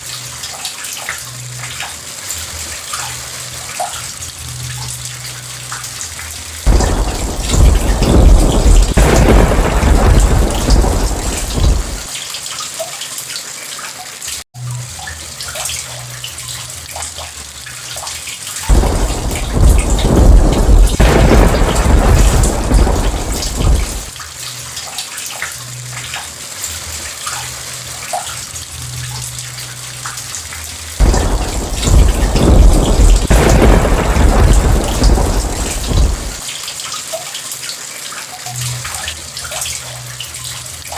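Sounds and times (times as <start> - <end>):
steady rain falling: 0.0 - 40.9
rolls of thunder: 6.7 - 12.1, 18.7 - 24.2, 31.0 - 36.4.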